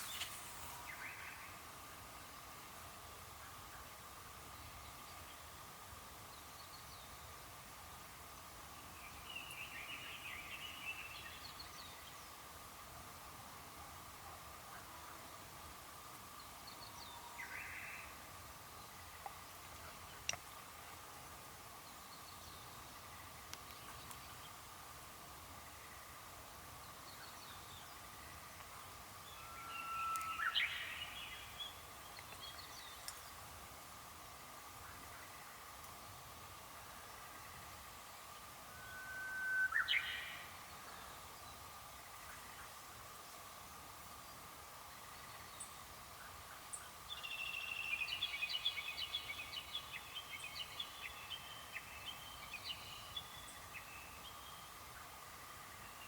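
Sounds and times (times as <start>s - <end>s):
bird singing clipped notes: 0.0s - 1.4s, 29.7s - 33.4s
background hiss: 0.0s - 56.0s
high bird calls: 29.3s - 31.2s
bird whistle: 38.8s - 40.2s.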